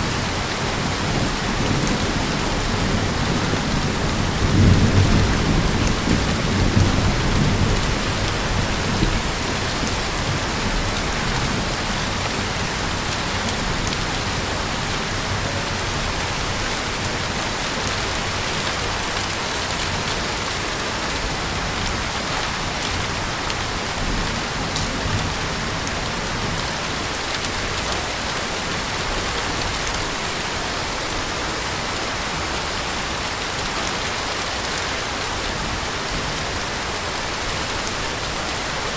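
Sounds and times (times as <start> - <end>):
heavy rain pattering: 0.0 - 38.9
low thunder rolling: 0.8 - 18.3.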